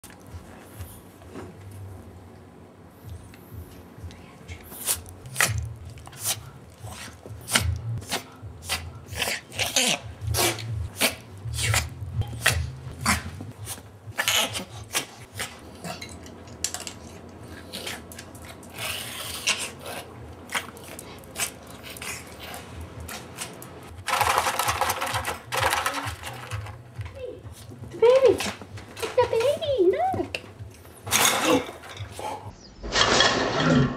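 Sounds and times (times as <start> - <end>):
dog sneezing: 6.2 - 16.0.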